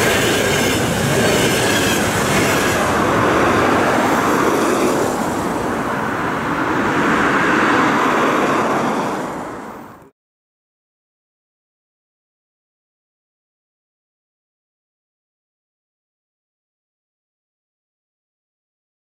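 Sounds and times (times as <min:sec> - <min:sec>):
clickety-clack of train wheels: 0:00.0 - 0:05.3
steel train wheels on rails: 0:00.0 - 0:09.7.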